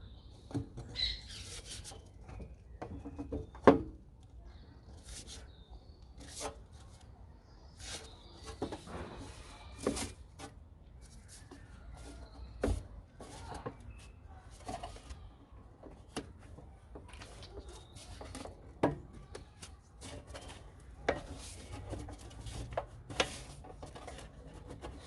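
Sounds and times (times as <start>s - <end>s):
rubber squeaky rubbing: 1.0s - 2.1s
plastic parts clicking and knocking: 12.4s - 25.0s.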